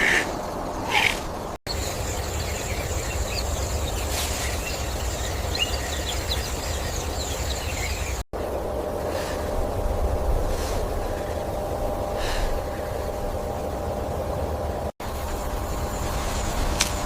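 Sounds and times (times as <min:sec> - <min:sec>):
faint bird chirps: 0:00.0 - 0:08.2
steady low rumble: 0:00.2 - 0:17.0.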